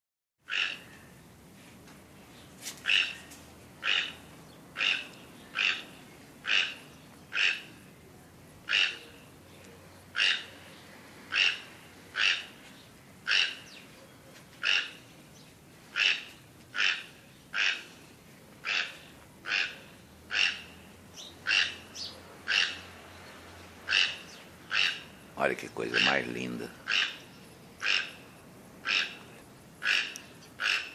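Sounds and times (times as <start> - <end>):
bird calling harsh note: 2.8 - 7.8, 8.7 - 9.4, 13.2 - 13.8, 23.9 - 30.9.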